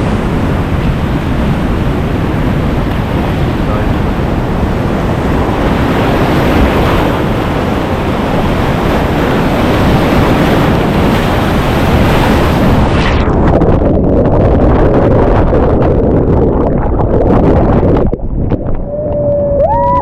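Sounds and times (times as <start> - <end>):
rushing whitewater: 0.0 - 13.2
wind buffeting microphone: 0.0 - 20.0.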